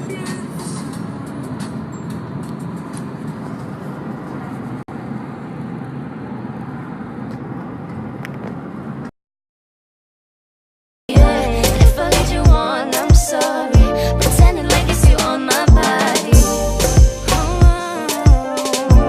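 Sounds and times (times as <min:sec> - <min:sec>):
road and engine noise in car: 0:00.0 - 0:09.1.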